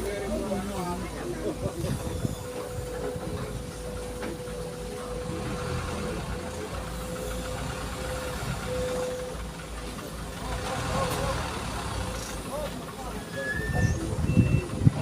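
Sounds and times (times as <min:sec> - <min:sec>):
diesel engine rumble: 0:00.0 - 0:15.0.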